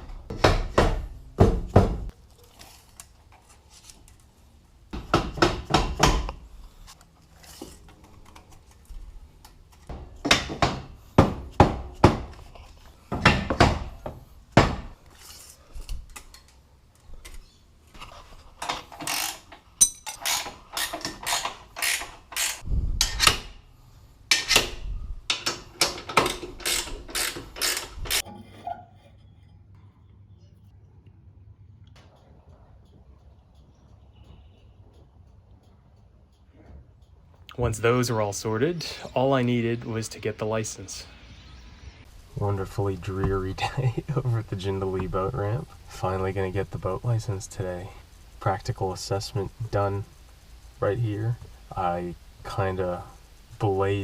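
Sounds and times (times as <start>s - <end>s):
ratchet wrench clicking: 19.1s - 23.2s, 26.6s - 28.2s.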